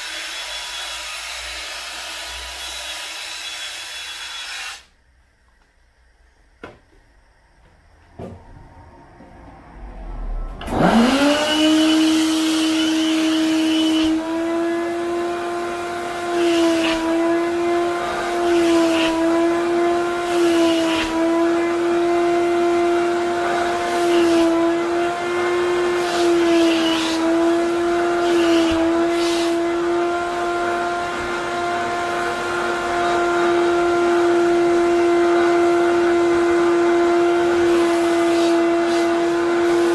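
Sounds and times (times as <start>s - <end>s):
wet vacuum motor humming: 10.6s - 39.9s.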